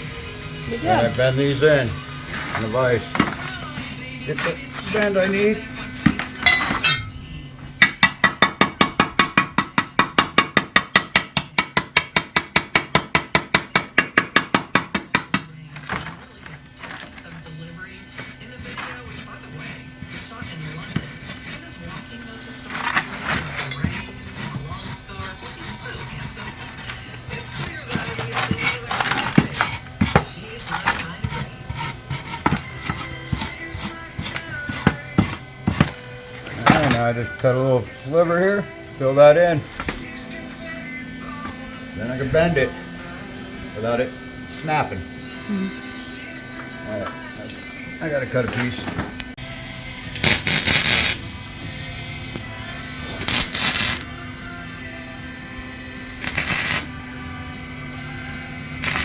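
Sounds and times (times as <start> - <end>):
hand tool rasping metal pipe: 3.2 - 7.1, 18.1 - 22.1, 22.7 - 37.1.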